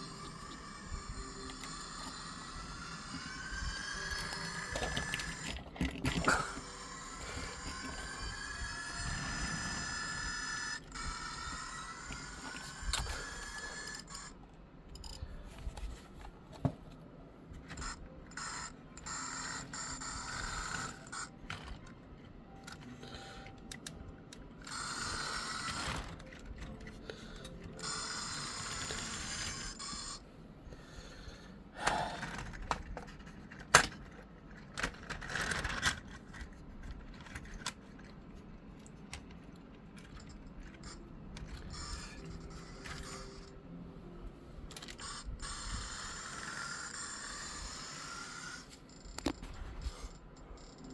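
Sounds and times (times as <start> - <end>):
model train motor whining: 0.0 - 14.3, 17.7 - 21.9, 24.6 - 26.5, 27.4 - 30.2, 44.8 - 49.3.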